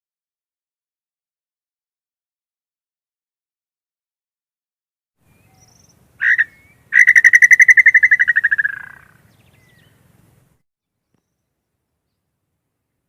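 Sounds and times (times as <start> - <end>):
bird whistled calls: 5.3 - 10.0.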